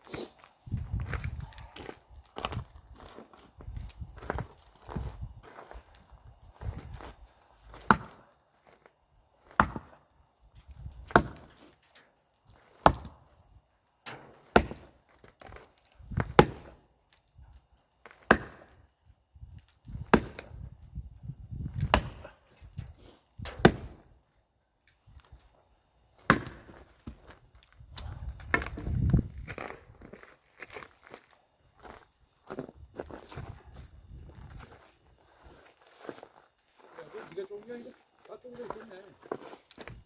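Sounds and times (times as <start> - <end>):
axe splitting firewood: 7.7 - 13.3, 14.0 - 17.2, 17.9 - 19.0, 19.6 - 20.7, 21.7 - 24.2, 26.2 - 29.7.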